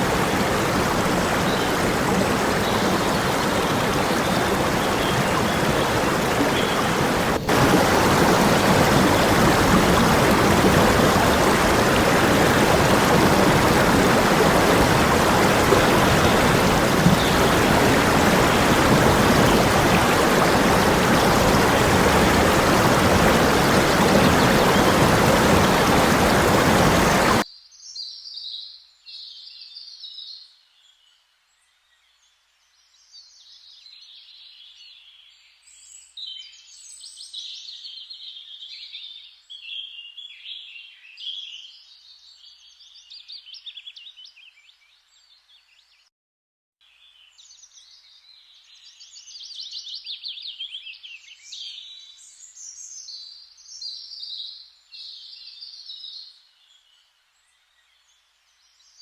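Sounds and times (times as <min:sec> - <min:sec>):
stream water rushing: 0:00.0 - 0:27.4.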